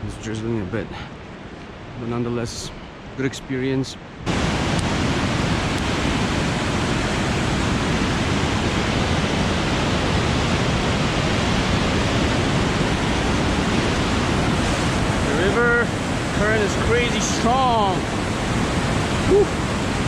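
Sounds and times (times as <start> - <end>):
river water roaring: 4.0 - 20.0.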